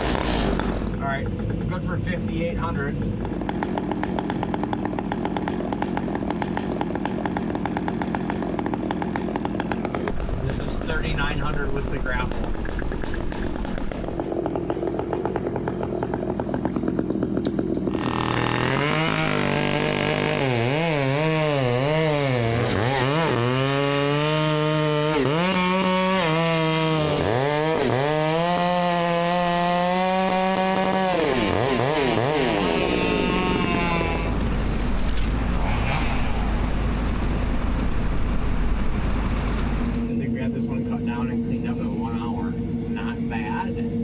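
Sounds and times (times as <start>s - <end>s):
chainsaw cutting at high revs: 0.0s - 1.7s, 2.9s - 35.3s
low engine rumble: 0.0s - 20.3s, 32.8s - 44.0s.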